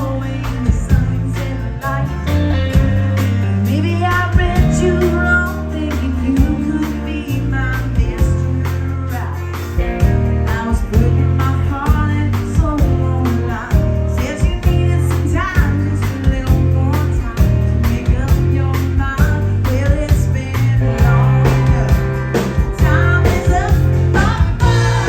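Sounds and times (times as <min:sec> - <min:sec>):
bass line: 0:00.0 - 0:25.0
guitar: 0:00.0 - 0:25.0
person singing: 0:00.0 - 0:25.0
drum beat: 0:19.2 - 0:25.0.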